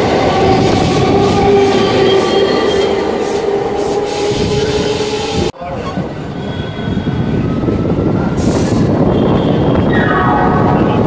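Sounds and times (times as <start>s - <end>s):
train wheels rumbling: 0.0s - 9.9s.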